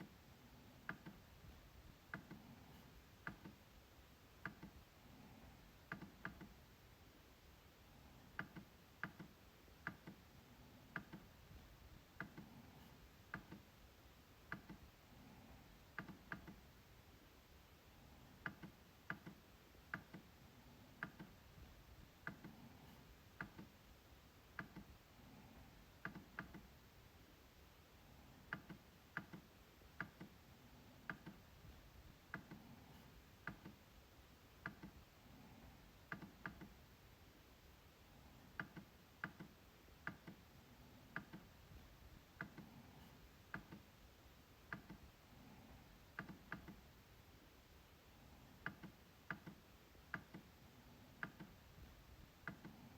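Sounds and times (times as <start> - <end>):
trackpad clicks: 3.2 - 3.6, 13.3 - 13.6, 14.5 - 14.8, 18.4 - 20.3, 21.0 - 21.4, 26.0 - 26.7, 28.5 - 30.4, 33.4 - 33.8, 34.6 - 35.0, 44.7 - 45.0, 46.2 - 46.8, 48.6 - 50.5, 51.2 - 51.6.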